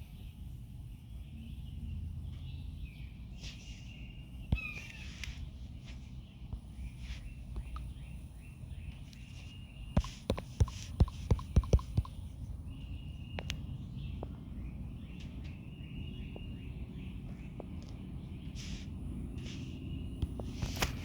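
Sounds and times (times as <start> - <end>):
faint high chirping: 1.1 - 21.0
keyboard keystrokes: 10.0 - 12.2.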